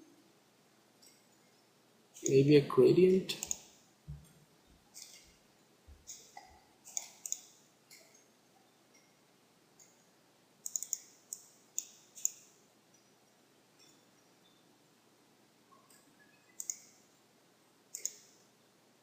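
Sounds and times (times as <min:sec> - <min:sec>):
computer mouse buttons clicking: 0:03.3 - 0:03.7, 0:04.9 - 0:05.3, 0:06.1 - 0:08.2, 0:10.6 - 0:12.5, 0:16.6 - 0:17.0, 0:17.9 - 0:18.4.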